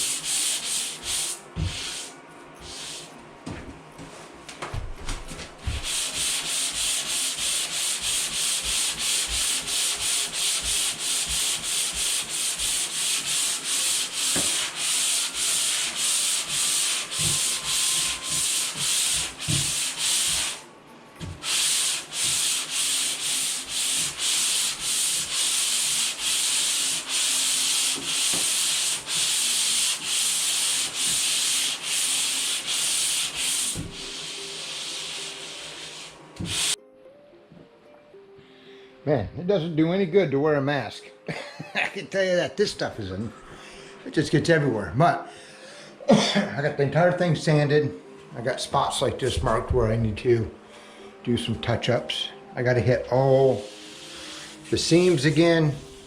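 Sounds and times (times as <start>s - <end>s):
hand sanding drywall compound: 0.0s - 3.1s, 5.3s - 20.6s, 21.2s - 36.8s, 53.2s - 56.0s.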